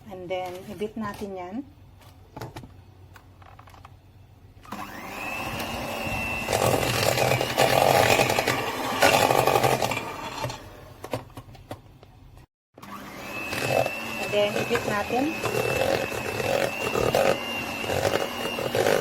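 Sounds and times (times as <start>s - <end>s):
electric mixer whining: 4.7s - 10.9s, 12.8s - 19.0s.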